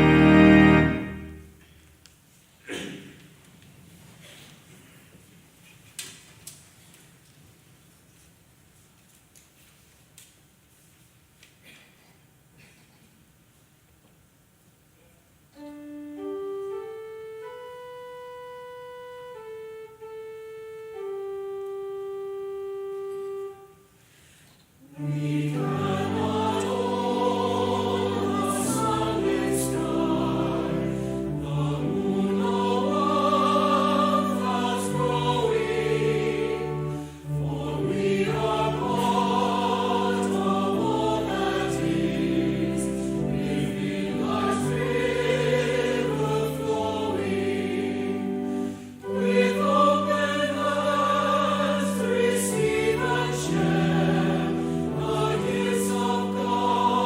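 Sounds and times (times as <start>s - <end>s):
choir singing held chords: 0.0s - 1.6s, 24.8s - 57.0s.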